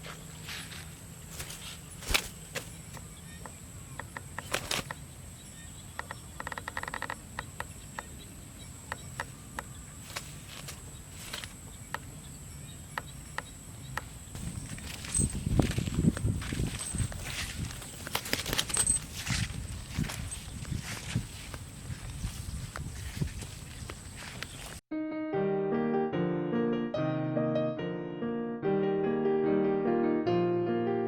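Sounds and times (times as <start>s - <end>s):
high insect drone: 0.0s - 24.8s.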